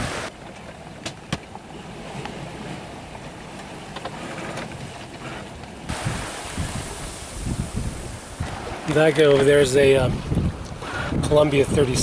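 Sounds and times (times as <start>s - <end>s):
wind noise on microphone: 0.0s - 0.3s, 5.9s - 12.0s
water rumbling against hull: 0.0s - 12.0s.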